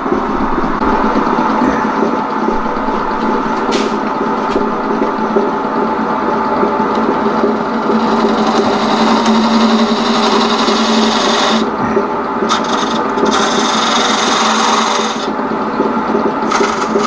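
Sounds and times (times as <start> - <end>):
lathe motor hum: 0.0 - 17.0
chisel scraping spinning wood: 7.4 - 15.4, 16.4 - 17.0.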